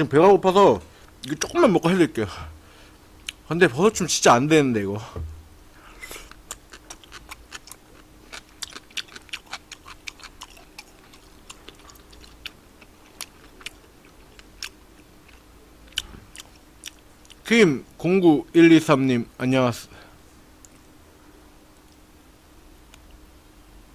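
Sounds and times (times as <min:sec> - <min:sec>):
faint steady hum: 0:00.0 - 0:23.9
wet chewing mouth sounds: 0:06.0 - 0:17.5.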